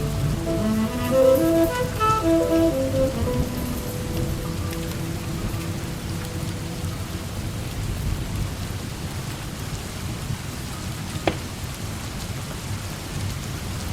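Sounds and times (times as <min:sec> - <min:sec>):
low rumble: 0:00.0 - 0:08.6
heavy rain: 0:00.0 - 0:13.9.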